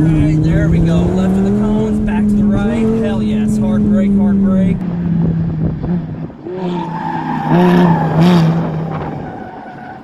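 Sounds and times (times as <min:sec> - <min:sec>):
sports car engine braking: 0:00.0 - 0:10.0.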